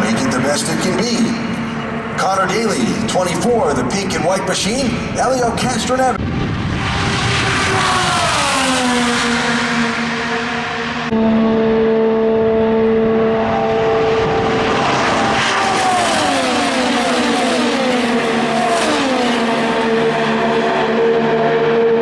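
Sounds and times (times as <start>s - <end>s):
race car engines at full throttle: 0.0s - 22.0s
race cars passing by: 0.0s - 22.0s.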